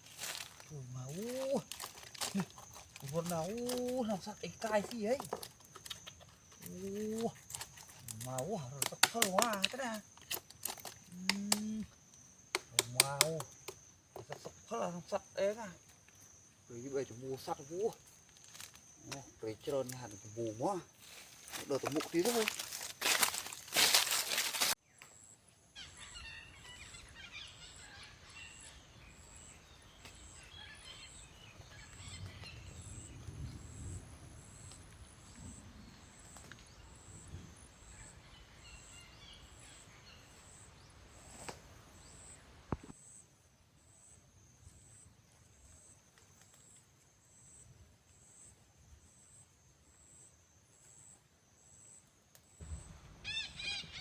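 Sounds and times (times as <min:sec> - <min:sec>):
outdoor background noise: 0:00.0 - 0:54.0
bird chirps: 0:24.8 - 0:33.9.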